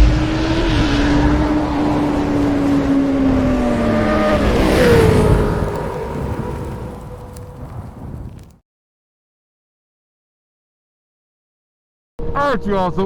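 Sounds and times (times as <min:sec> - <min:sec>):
motorcycle engine revving: 0:00.0 - 0:08.6
wind rush over microphone: 0:00.0 - 0:08.6.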